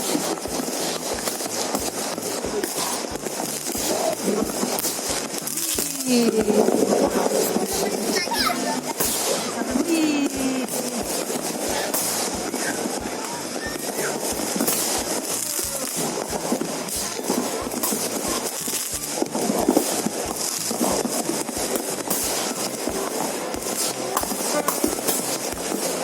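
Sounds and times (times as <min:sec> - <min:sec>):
crowd noise: 0:00.0 - 0:26.0
fireworks crackling and popping: 0:00.0 - 0:26.0
music: 0:00.0 - 0:26.0
loud firework bang: 0:06.0 - 0:09.8.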